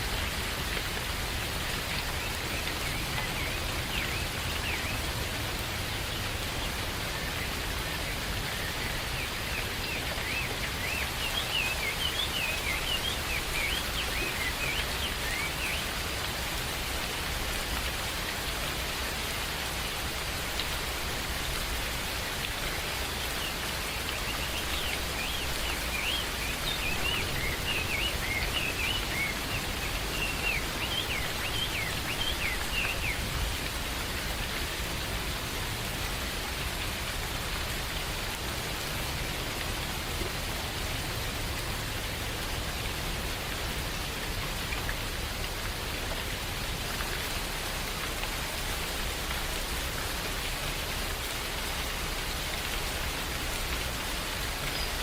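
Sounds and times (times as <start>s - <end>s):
steady rain in forest: 0.0s - 55.0s
bird chirping: 24.1s - 33.2s.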